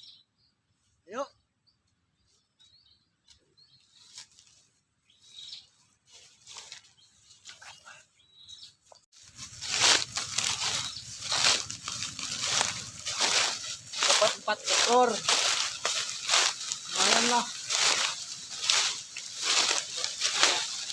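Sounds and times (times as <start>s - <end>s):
high bird chirps: 0.0s - 0.6s, 5.0s - 5.8s, 6.8s - 9.0s, 9.7s - 20.9s
birds fluttering and rustling: 2.2s - 8.0s, 8.6s - 20.9s.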